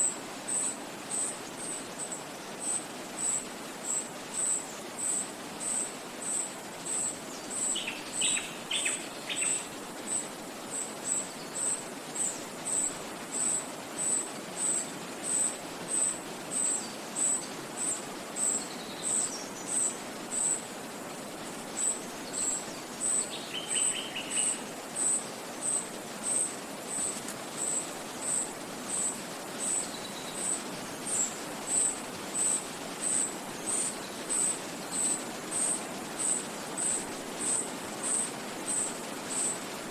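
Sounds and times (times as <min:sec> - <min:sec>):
stream flowing: 0:00.0 - 0:39.9
wind in trees: 0:00.0 - 0:39.9
birds calling: 0:07.6 - 0:11.8, 0:22.3 - 0:39.6.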